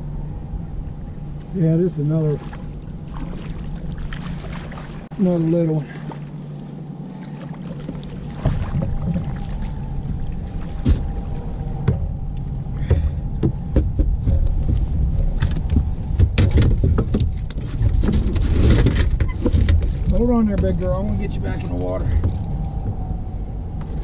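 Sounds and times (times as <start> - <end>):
low rumble: 0.0 - 24.0
knocks and clunks in a boat: 7.2 - 24.0.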